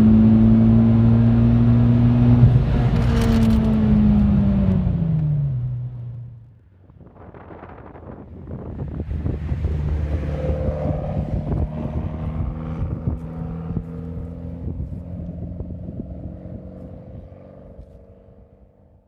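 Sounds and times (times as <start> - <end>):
car engine and exhaust: 0.0 - 19.0
wind and road noise: 0.0 - 19.0
exhaust crackles: 1.8 - 6.5, 8.6 - 18.0.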